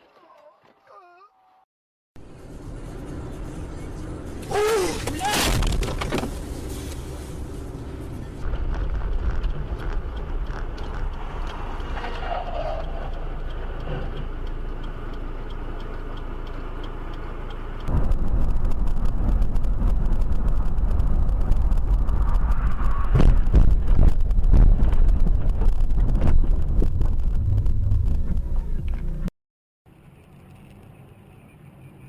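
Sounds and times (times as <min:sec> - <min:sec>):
car road and engine noise: 0:02.2 - 0:29.3, 0:29.9 - 0:32.0
rapid crackling: 0:03.3 - 0:13.8, 0:17.8 - 0:29.2.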